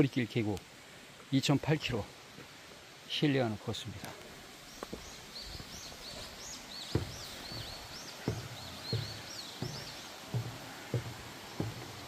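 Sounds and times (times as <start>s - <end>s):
stream rushing: 0.0s - 12.0s
songbird singing high whistled notes: 4.7s - 10.2s
footsteps thudding: 4.8s - 12.0s.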